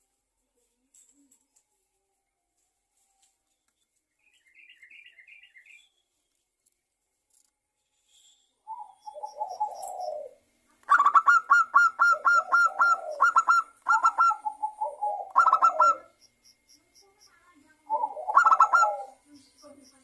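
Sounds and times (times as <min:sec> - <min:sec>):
dove cooing: 0:08.7 - 0:16.2, 0:17.9 - 0:19.2.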